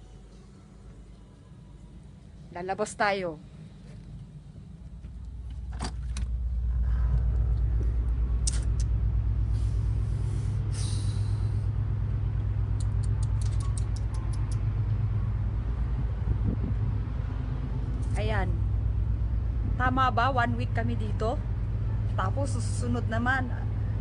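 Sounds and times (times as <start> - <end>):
ship engine rumble: 3.6 - 24.0
short hiss: 9.5 - 11.6
small clicks: 12.8 - 14.6.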